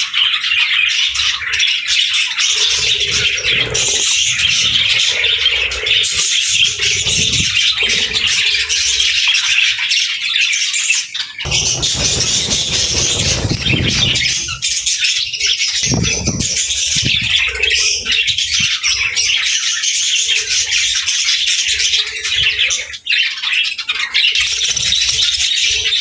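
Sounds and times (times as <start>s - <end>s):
budgerigars chattering: 0.0s - 26.0s
low rumbling: 2.6s - 9.0s, 11.5s - 14.8s.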